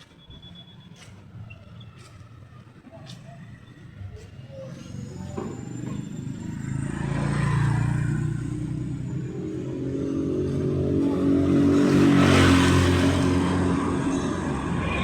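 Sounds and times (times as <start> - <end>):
vehicle engine passing: 4.7 - 15.0.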